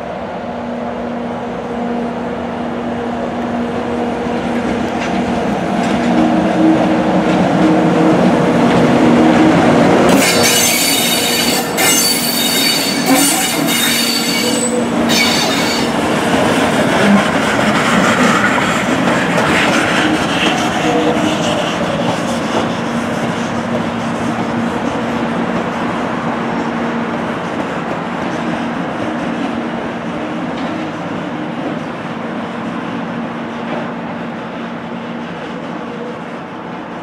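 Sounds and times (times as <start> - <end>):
train passing with humming rumble: 0.0 - 37.0
wheel squeal: 10.1 - 16.0.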